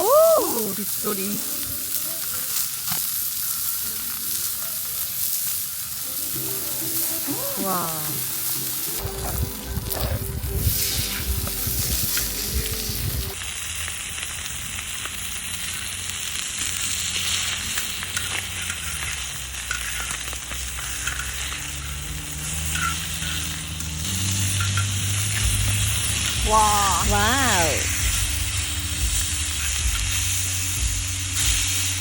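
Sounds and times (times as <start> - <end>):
pork sizzling in a pot: 0.0 - 32.0.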